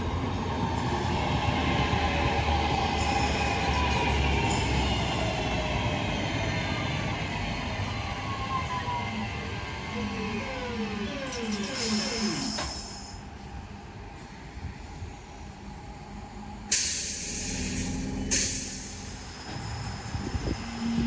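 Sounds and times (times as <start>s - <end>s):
train traction whine: 0.0s - 21.0s
loud air bursts: 16.7s - 19.2s
air hiss: 16.7s - 19.4s.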